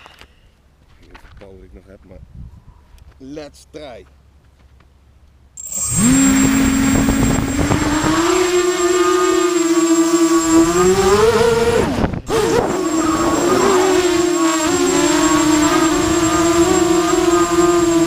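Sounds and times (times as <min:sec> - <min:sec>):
quadcopter motors buzzing whine: 0:05.6 - 0:18.0.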